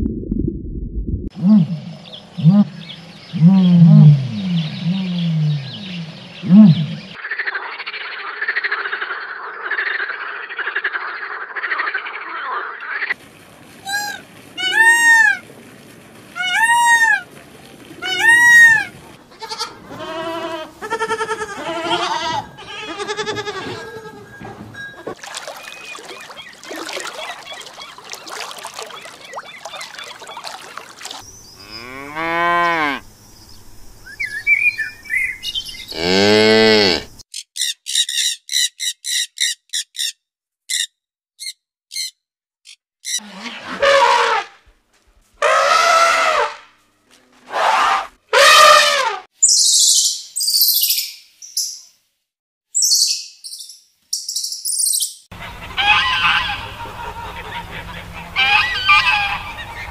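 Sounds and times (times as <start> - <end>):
peacock calls: 13.8 - 15.4, 16.4 - 17.3, 18.0 - 24.4, 25.0 - 31.9, 55.4 - 59.9
animal calls falling in pitch: 13.8 - 15.5, 16.4 - 17.3.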